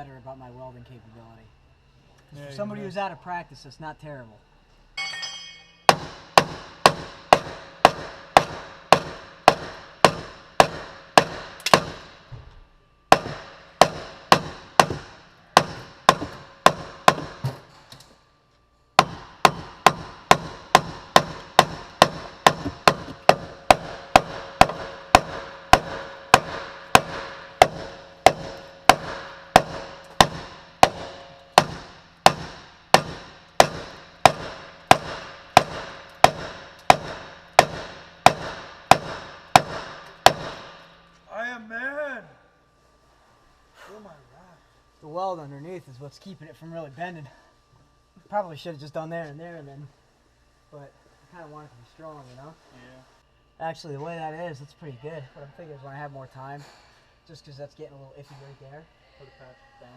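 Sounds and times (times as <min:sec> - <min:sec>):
hammer blows on steel frame: 0:05.0 - 0:12.3, 0:13.1 - 0:17.7, 0:19.0 - 0:41.2.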